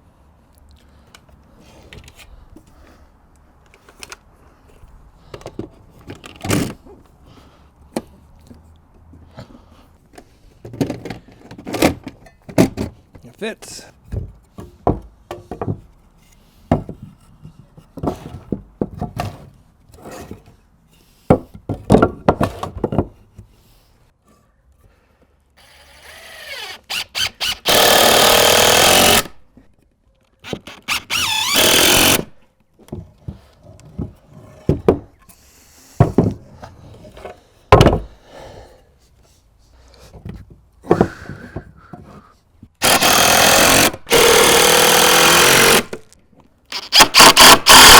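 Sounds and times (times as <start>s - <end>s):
power drill driving screws: 25.6s - 29.4s, 30.4s - 32.4s, 42.8s - 46.0s, 46.7s - 47.9s.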